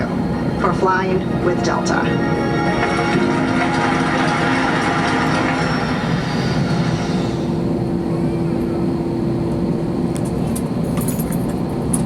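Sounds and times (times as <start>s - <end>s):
steady hum: 0.0s - 10.0s
airliner cabin drone: 0.0s - 12.0s.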